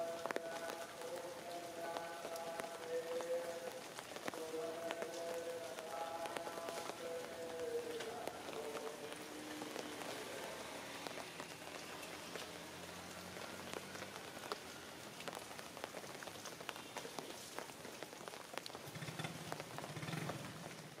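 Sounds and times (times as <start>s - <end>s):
raindrops ticking: 0.0s - 21.0s
steady rain hiss: 0.0s - 21.0s.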